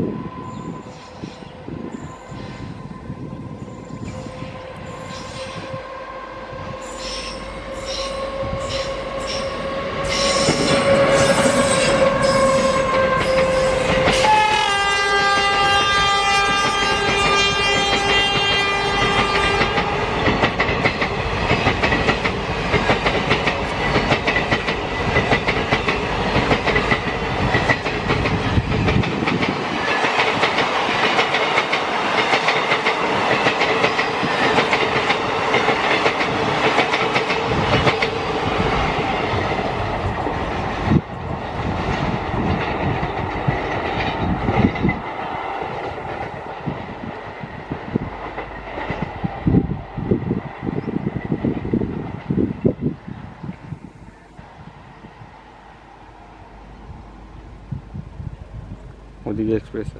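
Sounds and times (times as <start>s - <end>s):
electric locomotive whine: 0.0s - 59.9s
train horn: 0.1s - 20.2s
train wheels clickety-clack: 7.0s - 52.8s.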